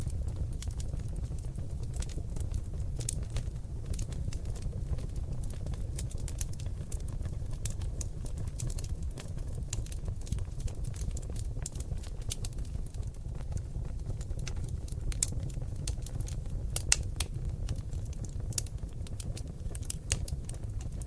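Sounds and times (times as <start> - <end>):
logs crackling and popping: 0.0 - 21.0
low rumble of flames: 0.0 - 21.0.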